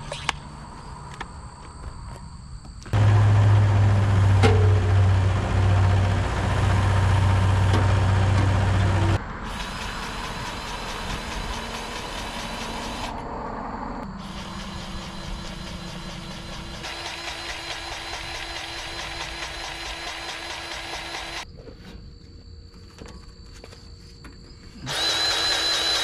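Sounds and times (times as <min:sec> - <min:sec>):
mechanical running noise: 0:02.8 - 0:13.3, 0:14.0 - 0:21.5, 0:24.8 - 0:26.0
diesel engine running: 0:02.9 - 0:21.4.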